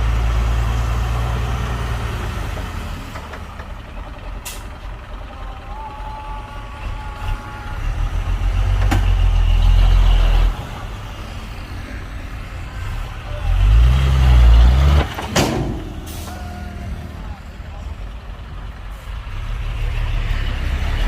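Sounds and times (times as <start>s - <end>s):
heavy diesel engine revving: 0.0s - 21.0s.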